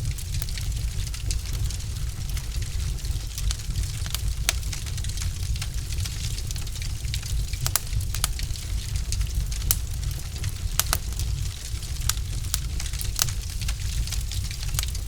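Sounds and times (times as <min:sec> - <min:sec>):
burning logs crackling and popping: 0:00.0 - 0:15.0
low rumble of fire: 0:00.0 - 0:15.0.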